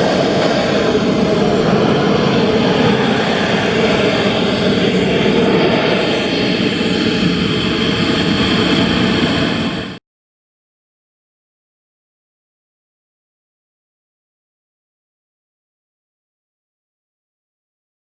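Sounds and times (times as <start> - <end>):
jet turbine engine roar: 0.0 - 10.0.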